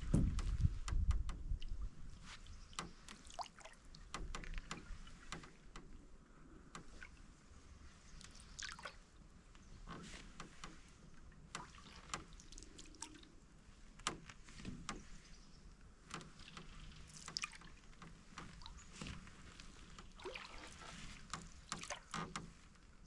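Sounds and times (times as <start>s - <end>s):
light ticks: 0.1s - 6.1s, 15.8s - 20.2s
water dripping off paddle: 0.4s - 15.2s, 16.0s - 22.8s
small water splashes: 1.5s - 6.0s, 6.7s - 13.5s, 16.1s - 22.8s.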